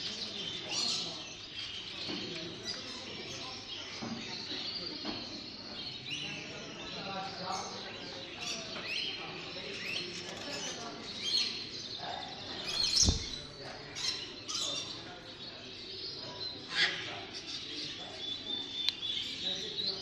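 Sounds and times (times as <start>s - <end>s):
birds chirping and calling: 0.0s - 20.0s
thump: 12.7s - 13.7s.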